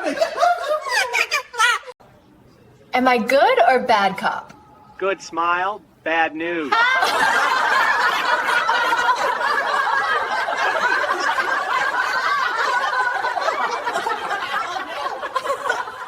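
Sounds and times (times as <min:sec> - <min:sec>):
group of people laughing: 0:00.0 - 0:02.0, 0:06.7 - 0:16.0.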